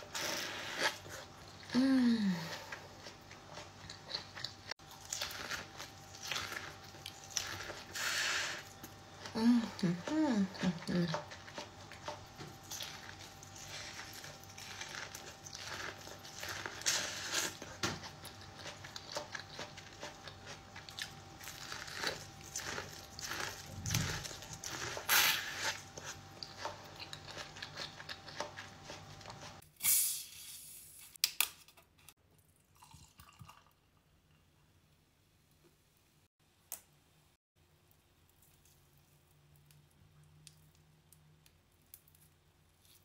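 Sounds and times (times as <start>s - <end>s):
crunchy corn chewing: 2.6s - 9.4s, 10.0s - 29.6s.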